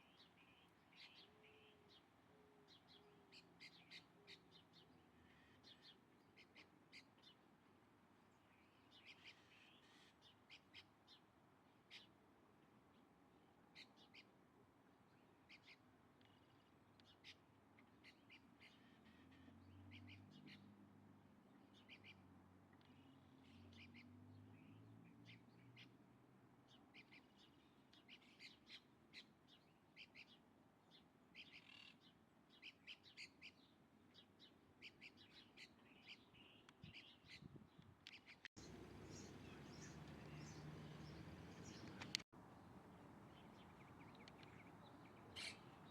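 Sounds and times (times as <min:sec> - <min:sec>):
birds chirping: 0:34.4 - 0:42.3.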